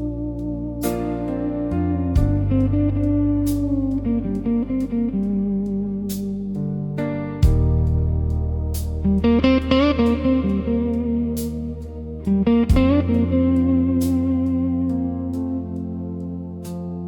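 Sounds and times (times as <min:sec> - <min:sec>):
sustained low bass: 0:00.0 - 0:16.6
electric guitar bent notes: 0:09.0 - 0:14.9.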